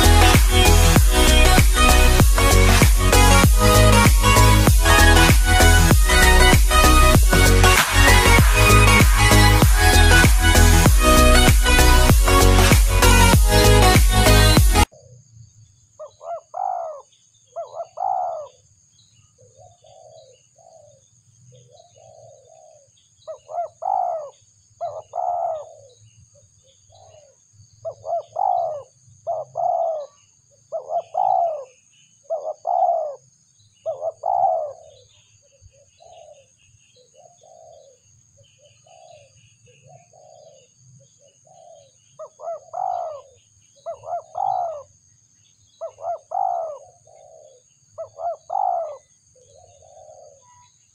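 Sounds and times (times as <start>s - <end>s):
high thin whine: 0.0s - 14.8s
doves cooing: 17.6s - 18.6s, 23.4s - 25.9s, 27.9s - 30.2s, 30.8s - 31.7s, 32.3s - 33.2s, 33.9s - 35.0s, 41.5s - 44.9s, 45.8s - 50.4s.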